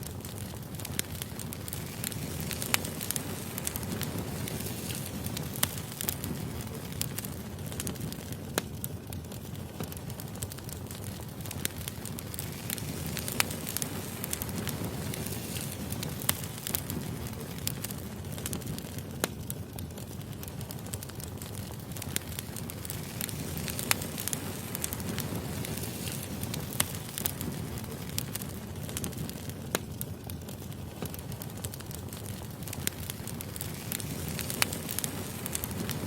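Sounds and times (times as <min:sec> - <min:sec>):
firewood crackling and popping: 0:00.0 - 0:36.0
rumble of flames: 0:00.0 - 0:36.0.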